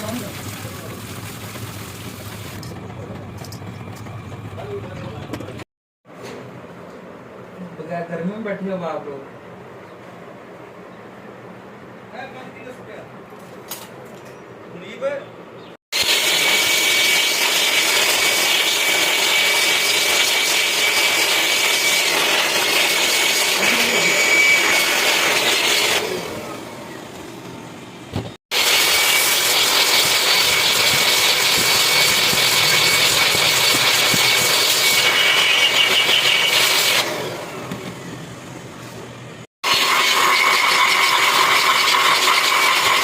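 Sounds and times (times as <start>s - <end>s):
power tool hissing and whining: 16.0s - 27.2s, 28.5s - 38.6s, 39.6s - 43.0s.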